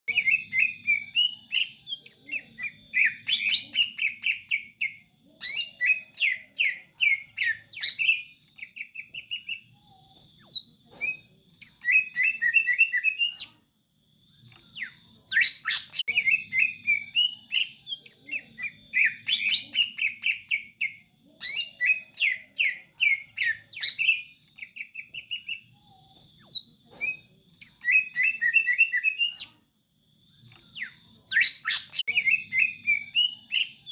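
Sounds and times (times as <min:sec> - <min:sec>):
bird chirping and trilling: 0:00.1 - 0:09.8, 0:10.4 - 0:13.5, 0:14.4 - 0:25.8, 0:26.4 - 0:29.5, 0:30.4 - 0:33.9.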